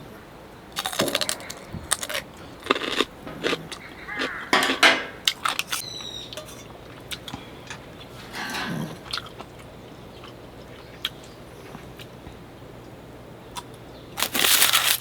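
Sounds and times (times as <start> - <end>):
person chewing food: 0.8 - 12.4.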